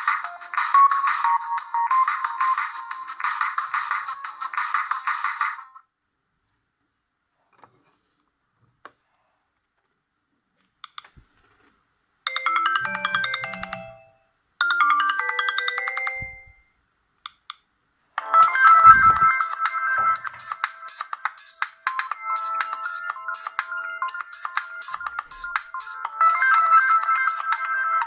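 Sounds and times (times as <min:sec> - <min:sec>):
melodic phone ringtone: 0:00.0 - 0:04.5, 0:12.3 - 0:16.7, 0:18.2 - 0:28.0
louder phone ringtone: 0:12.3 - 0:16.6, 0:18.2 - 0:20.6, 0:22.2 - 0:28.0.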